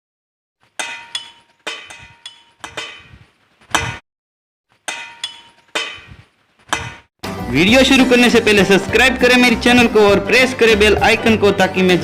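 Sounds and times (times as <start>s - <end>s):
metal bell ringing: 0.8s - 3.1s, 4.9s - 6.1s.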